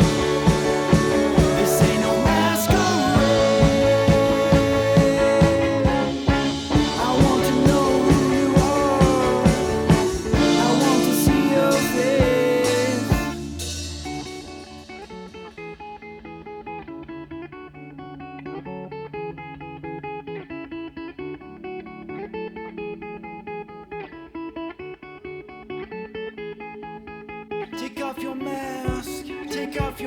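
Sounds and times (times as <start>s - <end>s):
indie rock band with drums: 0.0s - 16.3s
guitar picked pattern: 0.0s - 30.0s.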